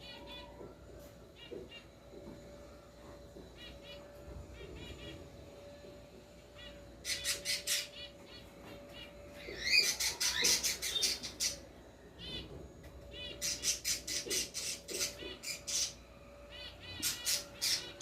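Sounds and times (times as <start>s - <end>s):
birds chirping and calling: 0.0s - 18.0s
rapid rasping bird calls: 6.5s - 12.4s, 13.1s - 18.0s.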